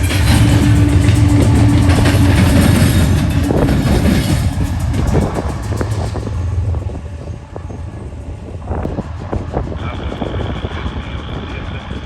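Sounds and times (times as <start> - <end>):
wheels clattering over rail joints: 0.0 - 7.6
freight train rumbling past: 0.0 - 12.0.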